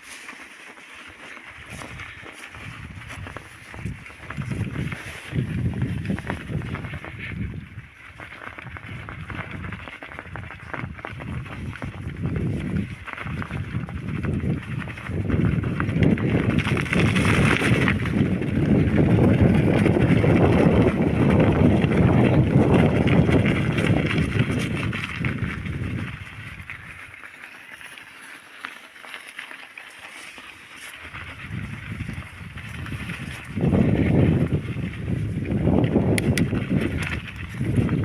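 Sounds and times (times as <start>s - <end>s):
bicycle rumbling on forest track: 0.0s - 38.0s.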